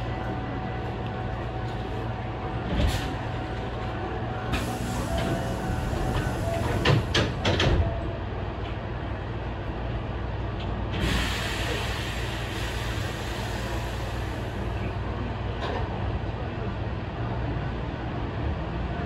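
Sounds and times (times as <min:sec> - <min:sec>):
train equipment humming: 0:00.0 - 0:16.6
air hissing: 0:11.0 - 0:14.8.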